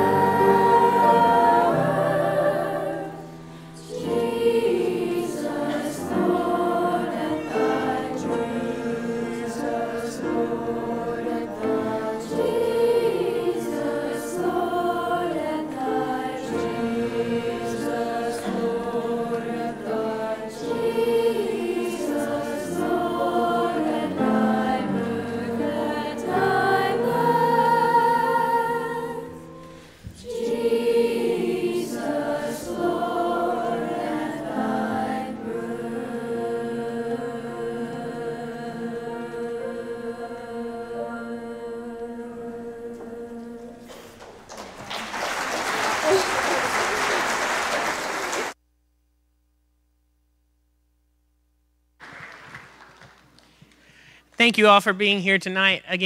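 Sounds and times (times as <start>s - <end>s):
choir singing: 0.0s - 44.4s.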